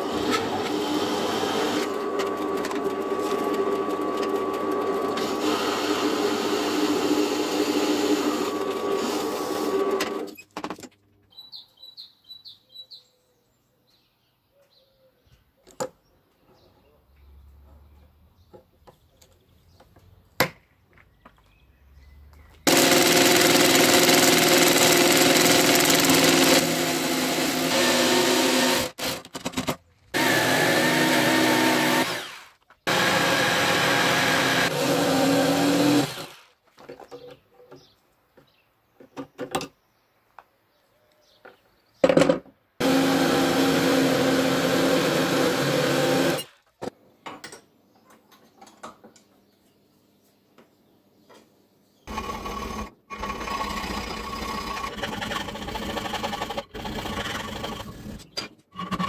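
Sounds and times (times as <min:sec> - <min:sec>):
electric jigsaw cutting steel: 0:00.0 - 0:10.4, 0:22.7 - 0:36.6, 0:42.8 - 0:46.6, 0:52.1 - 0:59.0.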